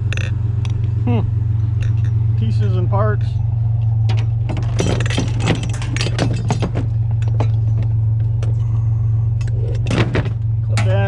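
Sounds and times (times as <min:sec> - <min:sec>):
vehicle engine idling: 0:00.0 - 0:11.0
metal parts clinking: 0:00.1 - 0:00.8, 0:01.8 - 0:02.2, 0:04.1 - 0:08.6.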